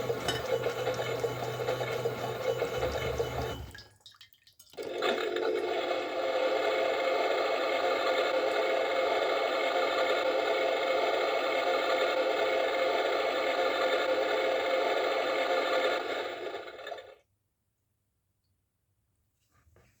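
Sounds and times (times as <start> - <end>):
toy washing machine motor whirring: 0.0 - 3.8, 4.9 - 17.2.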